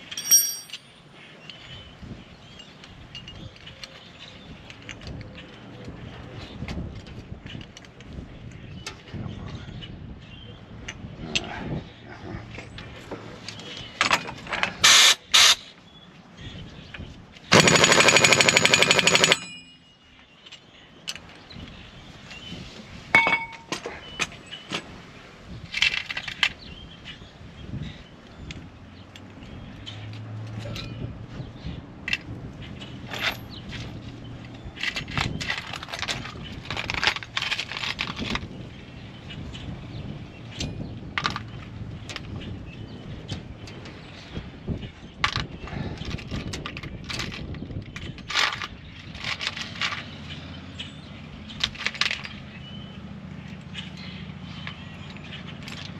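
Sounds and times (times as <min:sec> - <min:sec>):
metal parts clinking: 0:00.0 - 0:01.0, 0:17.5 - 0:21.2, 0:23.2 - 0:23.8, 0:33.0 - 0:33.9
pneumatic tool hammering rattle: 0:14.8 - 0:15.6, 0:17.5 - 0:19.7.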